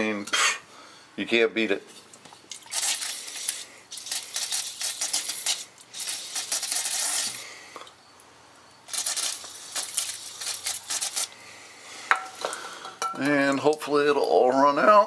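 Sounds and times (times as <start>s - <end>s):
aerosol spraying: 2.7s - 7.5s, 8.9s - 11.4s.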